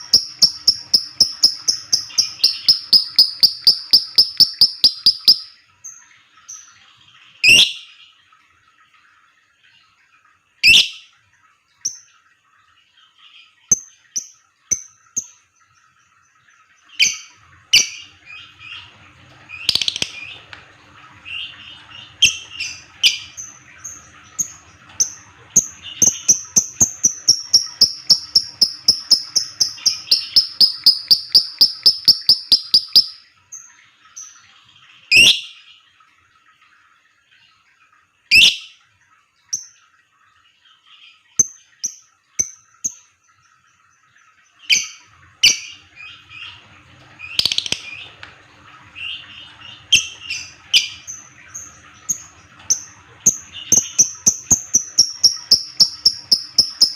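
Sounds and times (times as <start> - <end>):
lovebird chirping: 0.0 - 5.6, 19.6 - 20.3, 26.0 - 33.2, 53.6 - 56.9.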